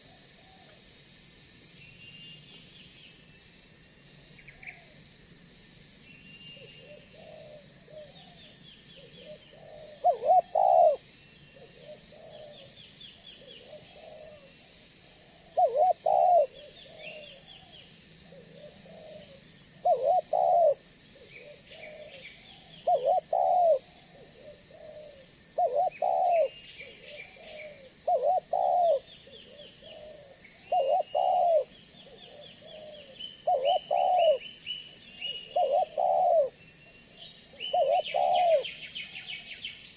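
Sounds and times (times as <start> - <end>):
dove cooing: 6.8 - 8.3, 9.0 - 11.0, 11.6 - 14.5, 15.2 - 17.7, 18.3 - 34.5, 35.2 - 36.6, 37.5 - 38.8
small birds chirping: 19.8 - 39.9.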